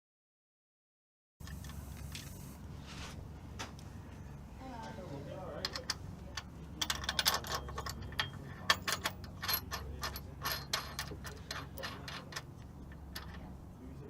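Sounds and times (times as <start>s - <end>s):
chain links clinking on metal: 6.8s - 13.4s.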